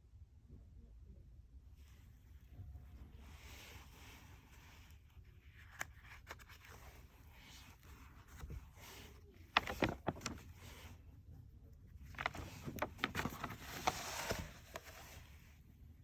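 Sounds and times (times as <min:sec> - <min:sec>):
faint clicks and scrapes: 0:02.5 - 0:11.0, 0:11.8 - 0:15.5.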